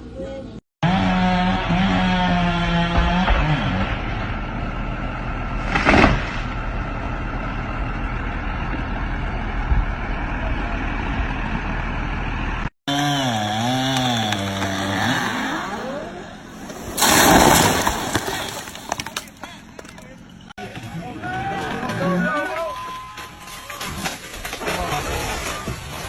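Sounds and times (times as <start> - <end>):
chainsaw engine revving: 0.8 - 6.2, 11.7 - 19.4
engine running: 0.8 - 20.5
loud crash: 5.6 - 6.8, 16.7 - 19.4.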